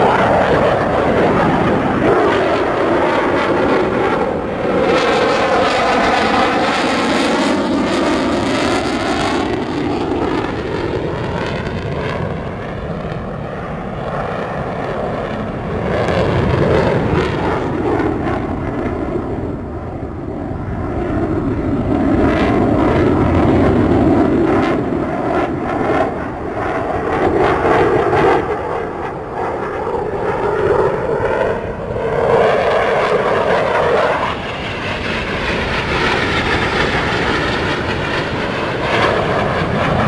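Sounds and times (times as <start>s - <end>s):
jet engines roaring: 0.0s - 40.0s.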